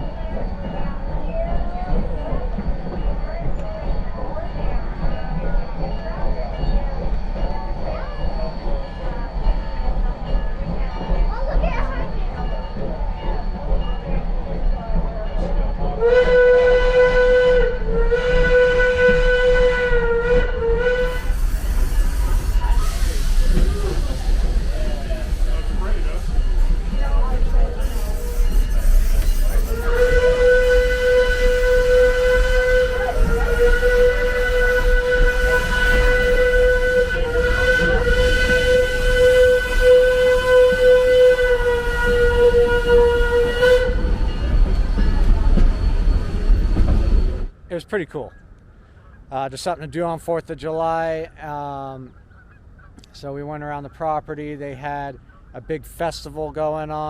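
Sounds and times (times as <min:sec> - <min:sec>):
steam whistle blowing: 0:16.0 - 0:24.6, 0:25.2 - 0:47.5.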